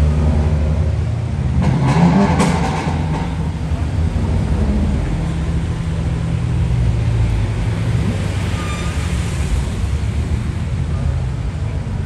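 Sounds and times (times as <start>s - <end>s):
car engine droning: 0.0s - 12.0s.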